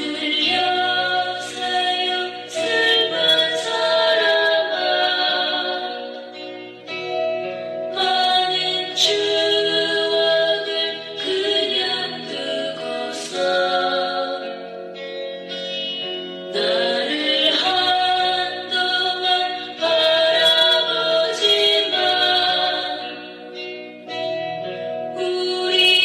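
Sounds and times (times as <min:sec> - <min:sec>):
woman singing sad song: 0:00.0 - 0:06.2, 0:08.0 - 0:14.5, 0:16.5 - 0:23.4, 0:25.1 - 0:26.0.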